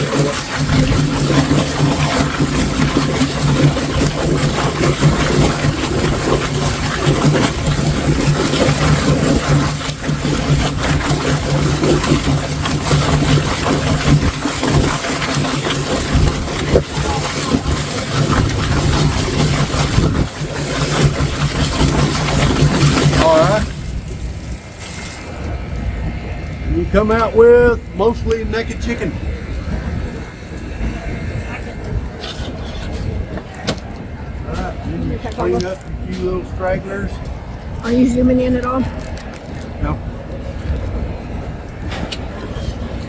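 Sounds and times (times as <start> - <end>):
chicken plucker motor hum: 0.0 - 35.6
water spray hissing: 20.6 - 25.5.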